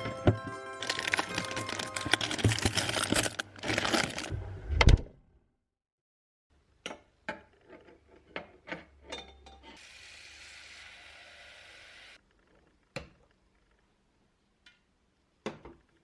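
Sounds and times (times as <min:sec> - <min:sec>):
utensils and dishes clinking: 0:00.0 - 0:04.3.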